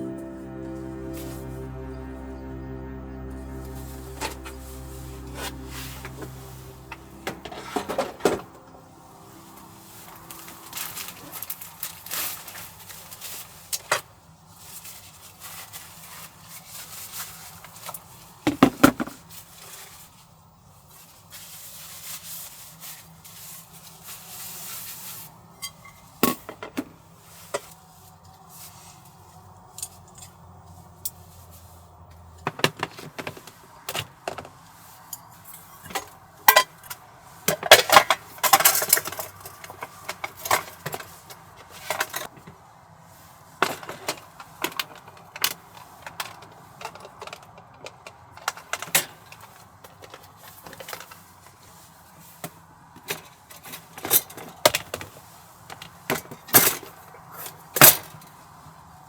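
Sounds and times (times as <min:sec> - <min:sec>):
faint low hum: 0:00.0 - 0:11.9.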